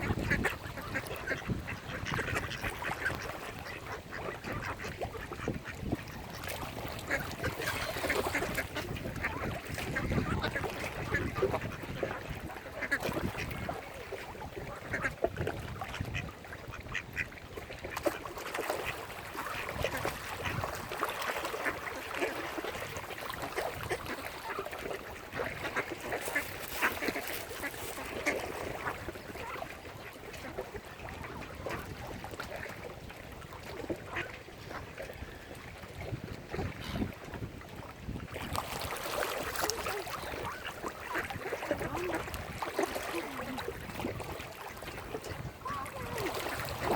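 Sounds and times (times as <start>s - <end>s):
ducks quacking: 0.0s - 32.8s, 33.6s - 35.6s, 39.2s - 46.9s.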